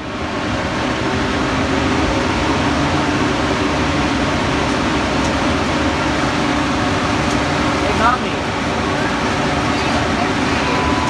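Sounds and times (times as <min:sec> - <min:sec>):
oven fan air rushing: 0:02.5 - 0:11.0.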